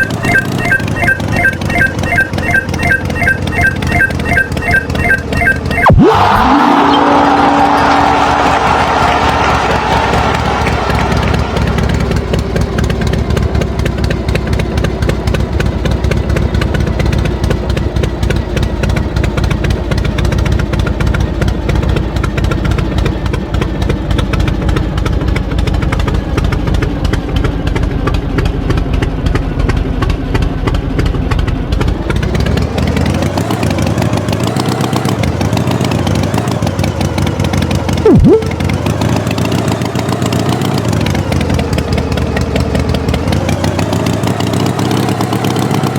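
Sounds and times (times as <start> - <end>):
tractor engine revving: 0.0 - 19.1
sound falling sharply in pitch: 2.6 - 8.5, 38.1 - 38.6.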